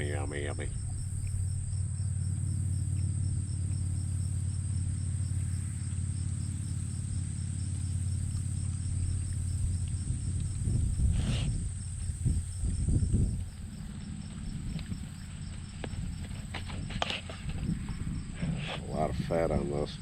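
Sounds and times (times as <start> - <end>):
crickets chirping: 0.0 - 20.0
low steady rumble: 0.0 - 20.0.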